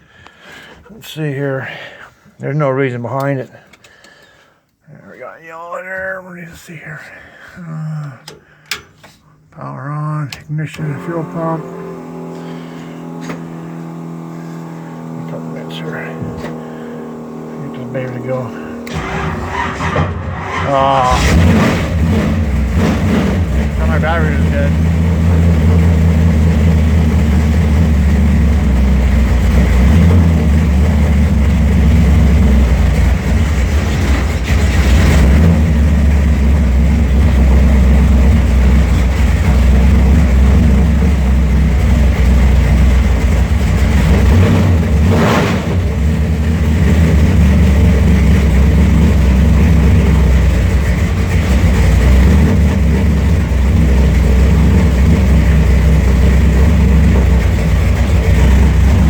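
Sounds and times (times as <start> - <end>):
deep engine idle: 10.9 - 59.0.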